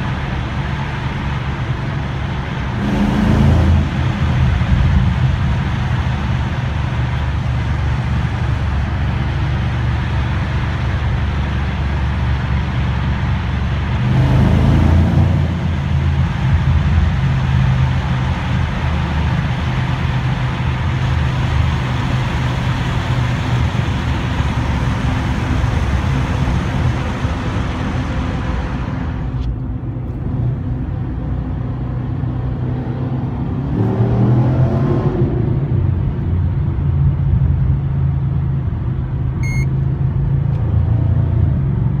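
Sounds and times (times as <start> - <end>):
car engine: 0.0 - 42.0
road noise hiss: 0.0 - 42.0
short electronic beep: 39.4 - 39.7.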